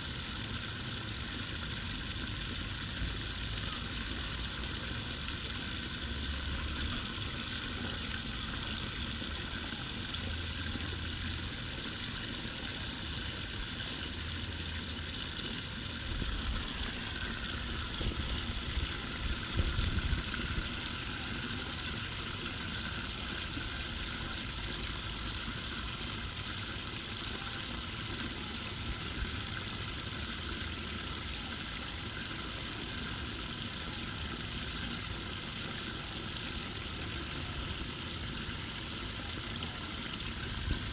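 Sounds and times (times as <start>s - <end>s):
water running down street drain: 0.0s - 40.9s.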